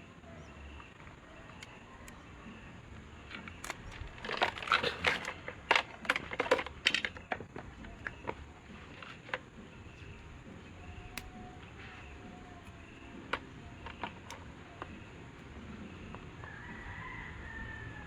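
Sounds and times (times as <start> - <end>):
hard objects clicking and clattering: 3.2 - 10.5, 12.6 - 16.2.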